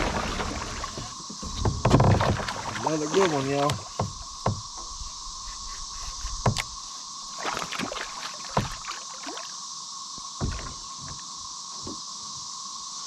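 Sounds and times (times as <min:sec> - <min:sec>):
knocks on plastic kayak hull: 0:00.4 - 0:05.0, 0:06.3 - 0:06.8, 0:08.5 - 0:08.8.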